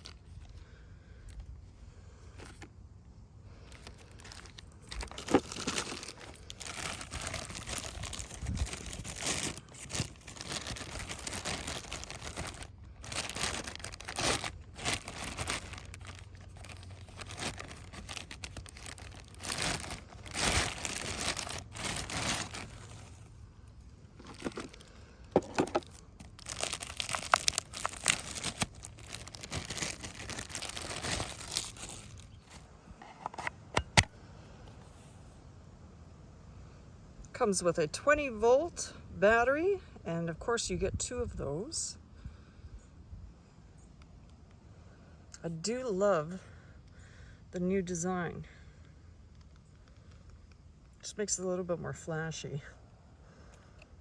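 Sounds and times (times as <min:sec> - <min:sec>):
packaging crinkling and tearing: 0:00.0 - 0:00.6, 0:03.6 - 0:23.4, 0:24.2 - 0:32.7.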